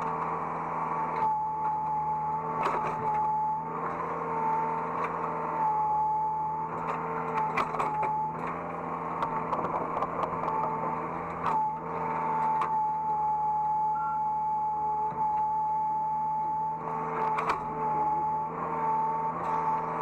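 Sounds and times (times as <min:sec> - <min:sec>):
excavator engine and hydraulics whine: 0:00.0 - 0:20.0
clicks and knocks: 0:09.2 - 0:10.8.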